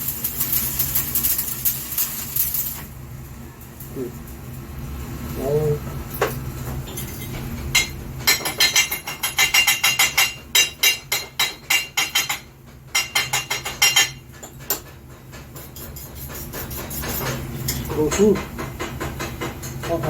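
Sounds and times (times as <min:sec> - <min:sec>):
hammer striking metal: 0:07.0 - 0:14.8.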